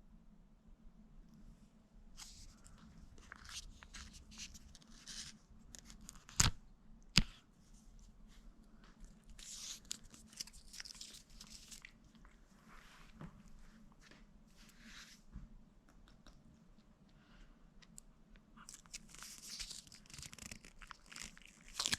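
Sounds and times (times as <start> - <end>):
plastic packets crinkling: 9.4 - 12.2, 18.7 - 21.9.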